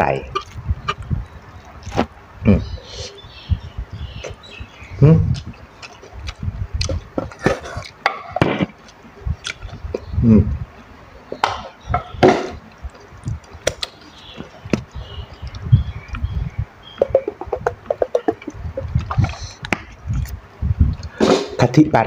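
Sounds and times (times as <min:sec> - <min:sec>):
wet mouth sounds: 0:04.2 - 0:08.0, 0:09.4 - 0:10.6, 0:12.7 - 0:14.8
person chewing food: 0:05.3 - 0:08.0, 0:08.7 - 0:10.1
soft low thumps: 0:11.5 - 0:21.1.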